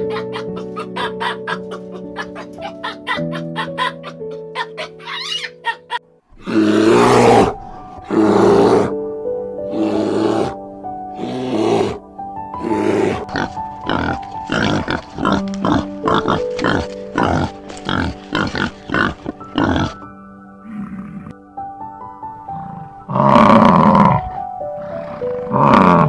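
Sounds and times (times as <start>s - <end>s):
piano music: 0.0s - 26.0s
breathy animal growls: 6.4s - 9.0s, 9.7s - 10.6s, 11.2s - 12.0s, 12.6s - 20.0s, 20.6s - 21.4s, 22.4s - 26.0s
wild boar grunting: 6.4s - 9.0s, 9.7s - 10.6s, 11.2s - 12.0s, 12.6s - 21.4s, 22.5s - 26.0s.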